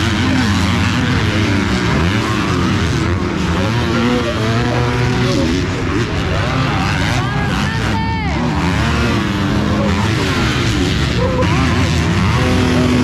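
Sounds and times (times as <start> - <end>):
motocross bikes revving past: 0.0 - 13.0.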